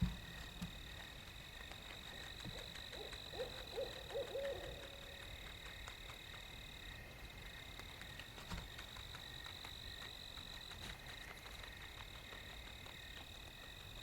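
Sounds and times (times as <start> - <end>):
owl hooting: 2.5 - 5.4.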